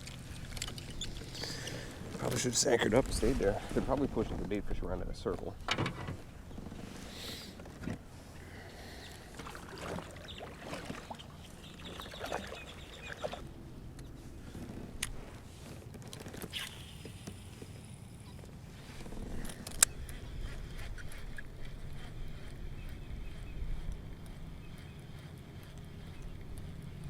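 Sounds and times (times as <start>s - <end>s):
small water sounds: 0.0s - 3.9s, 8.4s - 13.6s, 15.7s - 18.6s.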